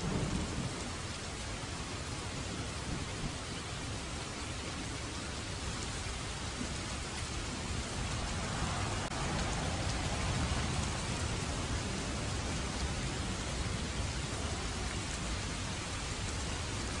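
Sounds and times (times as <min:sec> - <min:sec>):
heavy rainfall hiss: 0:00.0 - 0:17.0.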